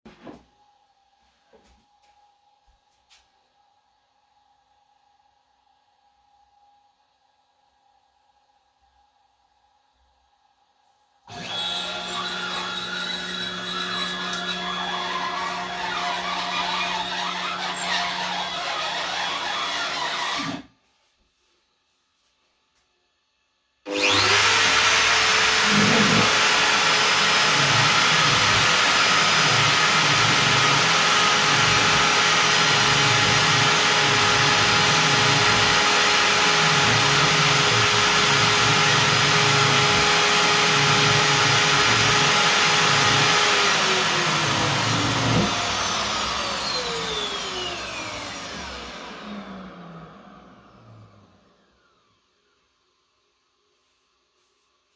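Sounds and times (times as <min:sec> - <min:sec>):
spindle winding down: 0:11.3 - 0:20.6, 0:23.9 - 0:51.3
router spindle whining: 0:11.3 - 0:20.7, 0:23.9 - 0:51.6.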